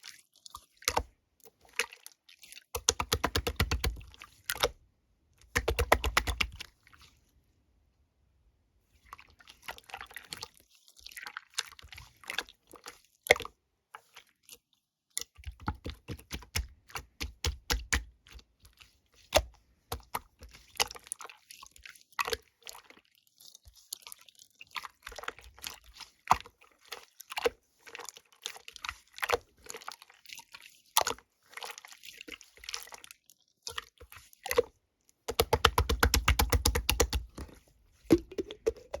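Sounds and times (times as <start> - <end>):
slime squishing by hand: 0.0 - 4.8, 5.4 - 7.2, 15.2 - 39.0.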